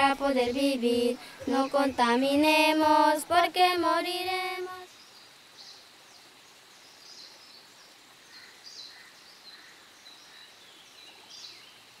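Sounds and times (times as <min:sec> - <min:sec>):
faint high steady tone: 0:00.0 - 0:04.9
soft steady hiss: 0:00.0 - 0:12.0.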